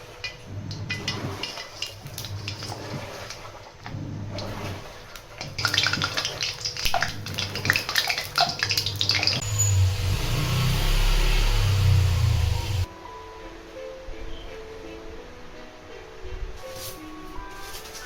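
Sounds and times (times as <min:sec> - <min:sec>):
kitchenware clinking: 0:00.0 - 0:03.4
running water: 0:00.0 - 0:12.9.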